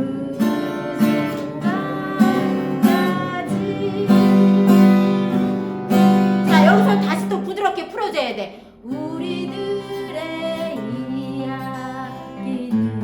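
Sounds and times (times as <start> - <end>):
acoustic guitar strummed waltz: 0.0 - 7.7, 8.8 - 13.0
person singing long notes: 6.5 - 7.4.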